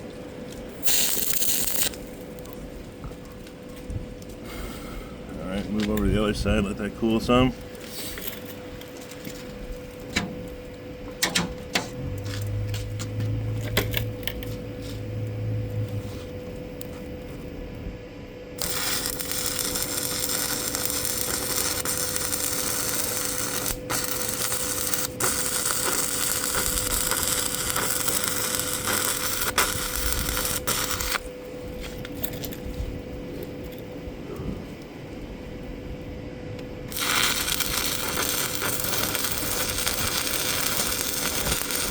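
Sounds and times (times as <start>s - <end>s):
steady whine: 0.0s - 41.9s
welding arc crackling: 0.8s - 2.4s, 18.6s - 31.2s, 36.9s - 41.9s.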